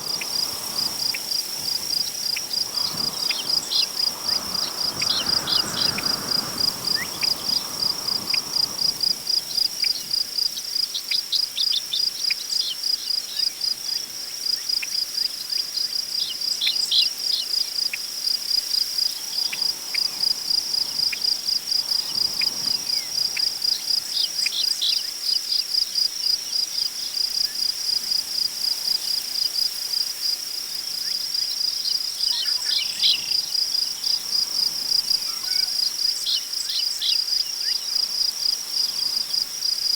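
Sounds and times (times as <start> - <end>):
wind gusts in grass: 0.0 - 10.8, 18.3 - 24.8, 32.1 - 36.8, 37.4 - 39.9
crickets chirping: 0.0 - 39.9.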